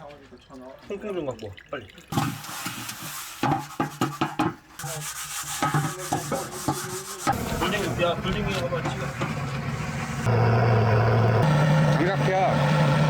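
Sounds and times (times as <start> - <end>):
firewood rubbing and scraping: 2.2 - 10.3.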